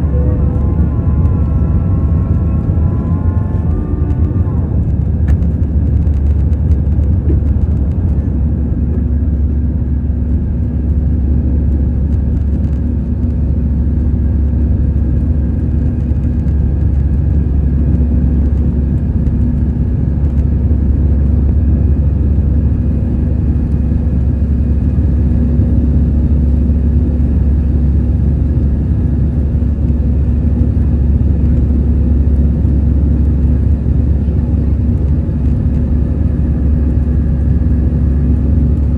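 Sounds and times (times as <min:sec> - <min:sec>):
faint steady tones: 0:00.0 - 0:05.5
airplane cabin rumble: 0:00.0 - 0:38.9.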